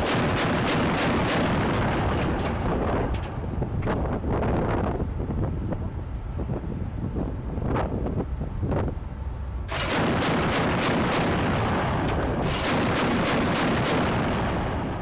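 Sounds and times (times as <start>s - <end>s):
rapid gunfire: 0.0s - 2.2s, 9.7s - 14.9s
dense rumble: 0.0s - 9.1s, 9.7s - 15.0s
wind noise: 0.0s - 15.0s.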